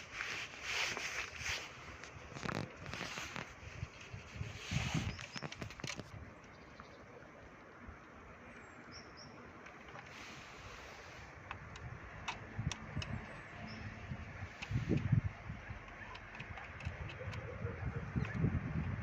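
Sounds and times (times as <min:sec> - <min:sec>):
handling rustling: 0:00.0 - 0:06.3
sharp clicks: 0:11.3 - 0:13.9, 0:14.5 - 0:19.0.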